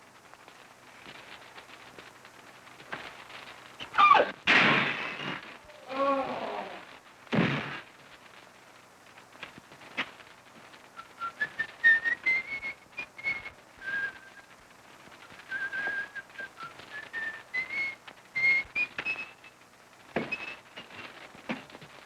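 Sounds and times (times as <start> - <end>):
loud thud: 4.5 - 5.4
person whistling a tune: 11.0 - 14.4, 15.4 - 19.4.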